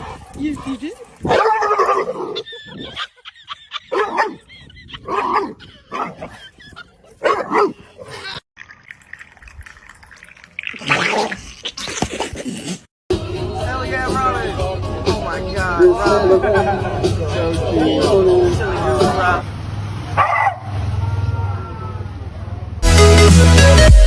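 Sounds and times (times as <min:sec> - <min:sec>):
dog barking and yipping: 0:00.0 - 0:08.4, 0:20.2 - 0:20.6.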